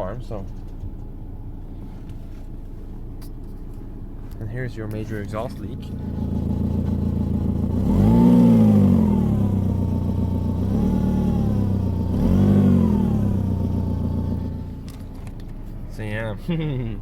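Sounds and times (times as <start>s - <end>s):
car engine revving: 4.9s - 16.8s.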